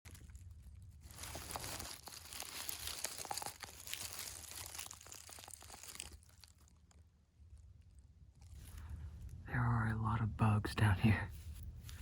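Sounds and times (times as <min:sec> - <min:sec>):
dry leaves and twigs crunching: 0:00.0 - 0:09.4.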